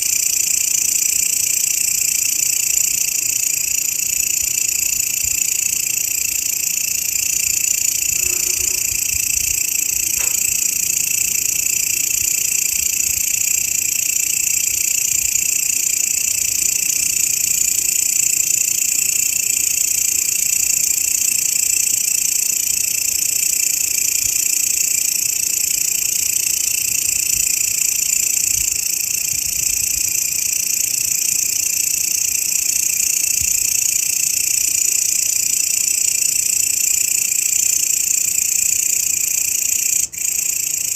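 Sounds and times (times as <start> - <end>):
grasshopper buzzing: 5.0 - 14.8.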